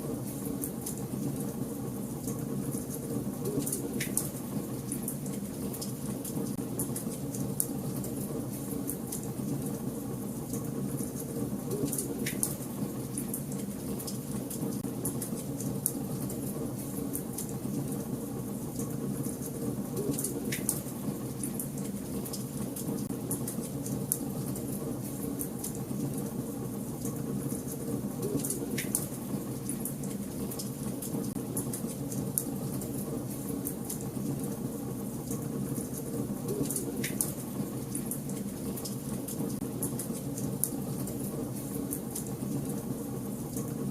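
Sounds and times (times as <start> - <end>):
fire crackling in fireplace: 0.0 - 43.9
loud fire snaps: 11.9 - 13.3.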